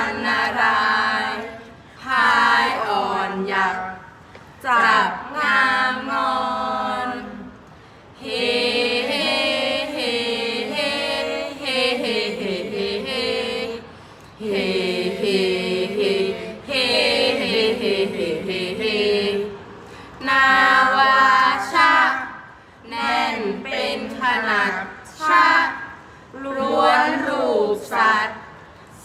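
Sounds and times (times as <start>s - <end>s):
voices chanting melodic poetry: 0.0s - 29.0s.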